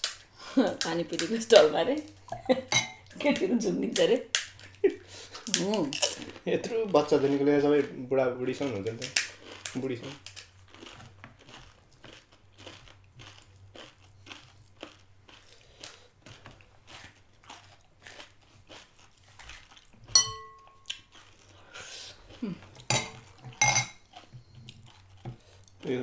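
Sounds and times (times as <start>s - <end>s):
tableware clattering: 2.3s - 3.1s, 20.1s - 20.9s, 22.9s - 24.0s
tableware clinking: 2.3s - 3.1s, 20.1s - 20.9s, 22.9s - 24.0s
crisp shells crunched and chewed: 8.8s - 20.1s, 20.7s - 22.9s.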